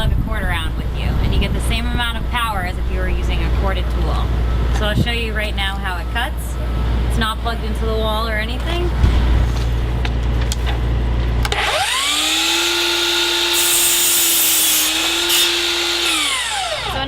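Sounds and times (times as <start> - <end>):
miter saw motor whine: 11.4 - 17.0
saw blade cutting wood: 11.5 - 17.0.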